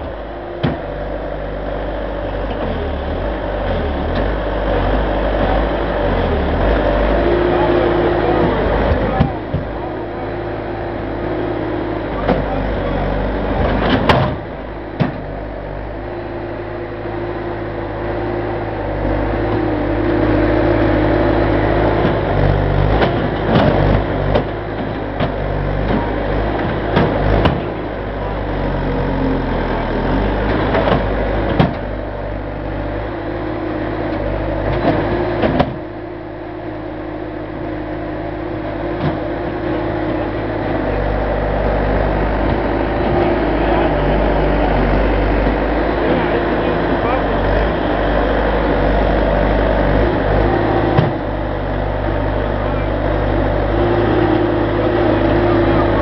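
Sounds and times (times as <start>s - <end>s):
engine running: 0.0s - 56.0s
knocks and clanks: 13.6s - 15.3s, 22.9s - 27.8s, 30.5s - 31.9s.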